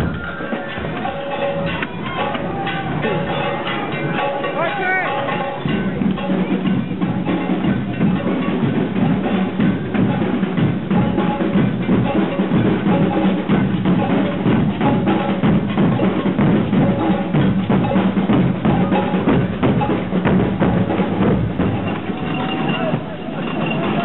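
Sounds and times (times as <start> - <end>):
snare and bass drums beating: 0.0 - 24.0.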